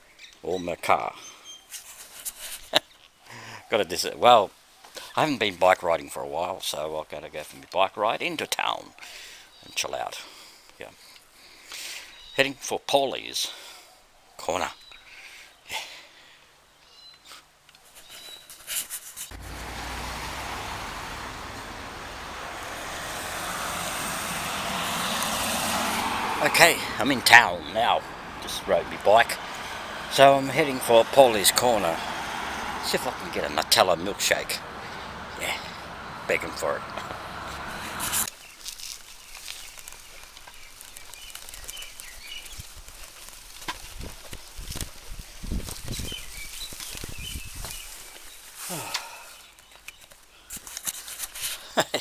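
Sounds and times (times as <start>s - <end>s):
outdoor noise: 0.0s - 52.0s
faint small bird chirps: 0.1s - 2.0s
traffic rushing: 19.3s - 38.3s
wind noise: 43.8s - 47.9s.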